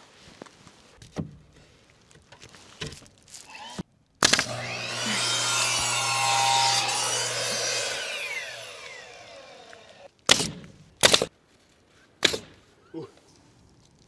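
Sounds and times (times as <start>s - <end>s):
saw blade winding down: 3.5s - 11.3s
table saw cutting wood: 3.5s - 11.3s, 12.2s - 12.4s.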